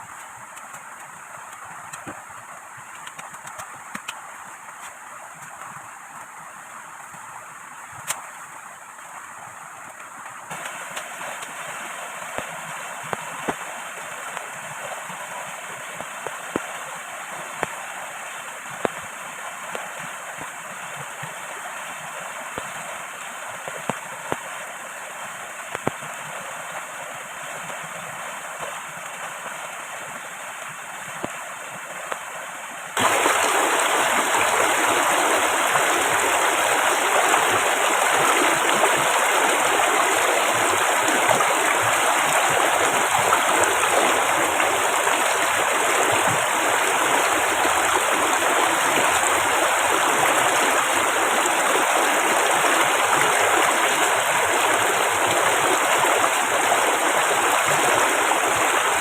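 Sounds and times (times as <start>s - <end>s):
river water rushing: 0.0s - 59.0s
heavy rain: 33.0s - 59.0s.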